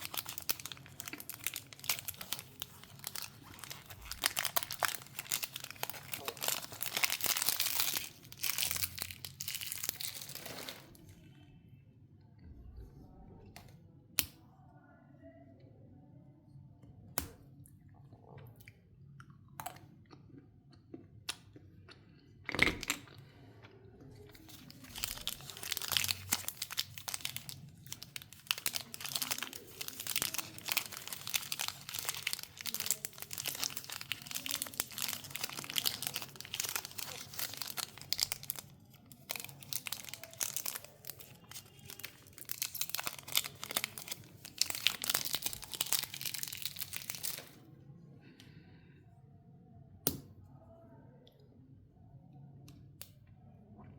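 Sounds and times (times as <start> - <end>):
wrapper crinkling and tearing: 0.0 - 11.0, 24.3 - 47.6.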